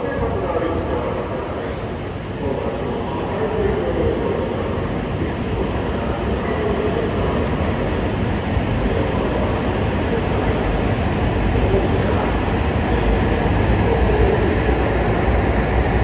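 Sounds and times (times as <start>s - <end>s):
train running rumble: 0.0s - 16.0s.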